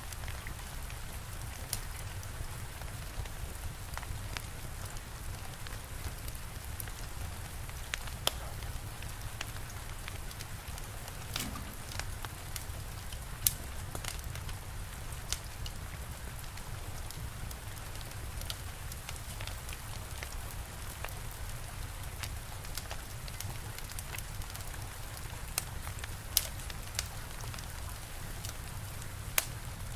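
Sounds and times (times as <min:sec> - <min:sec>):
steady rain: 0:00.0 - 0:29.9
wood fire crackling: 0:00.1 - 0:29.9.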